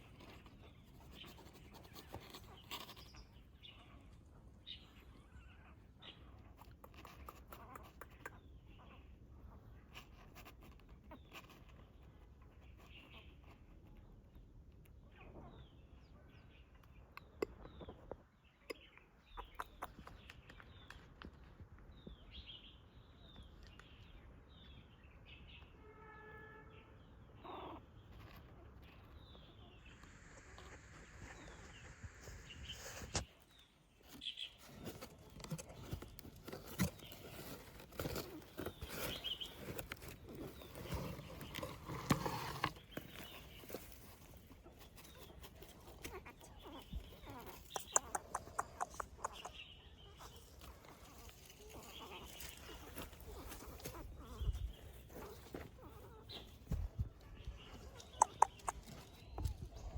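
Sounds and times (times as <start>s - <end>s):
small birds chirping: 0.0s - 25.8s, 26.7s - 59.9s
rustling: 29.8s - 59.9s.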